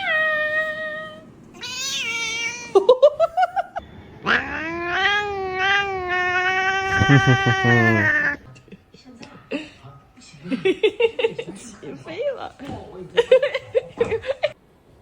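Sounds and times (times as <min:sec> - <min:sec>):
cat meowing: 0:00.0 - 0:02.8, 0:04.2 - 0:08.4
cat yowling: 0:00.0 - 0:02.9, 0:04.2 - 0:08.4.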